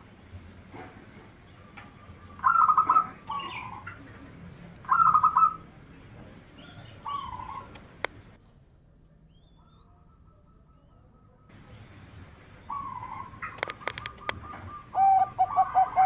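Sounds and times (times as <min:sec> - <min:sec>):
dove cooing: 0:01.6 - 0:04.2, 0:04.8 - 0:05.8, 0:06.5 - 0:08.0, 0:12.4 - 0:16.0.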